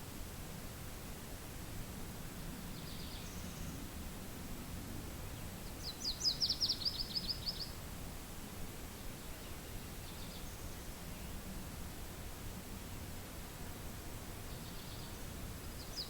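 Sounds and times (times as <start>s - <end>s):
low steady wind: 0.0s - 16.0s
songbird trilling: 5.8s - 7.7s.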